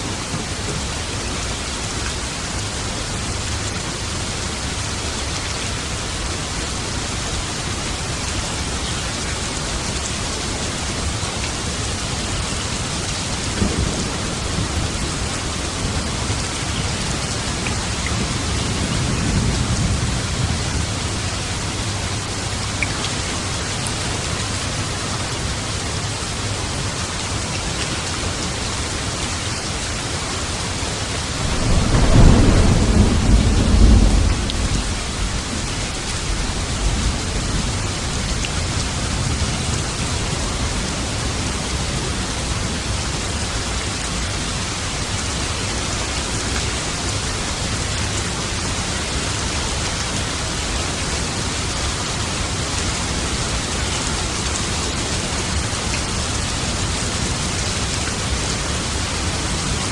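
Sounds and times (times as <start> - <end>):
heavy rain: 0.0 - 59.9
thunder rumbling: 12.5 - 22.7, 31.1 - 43.0.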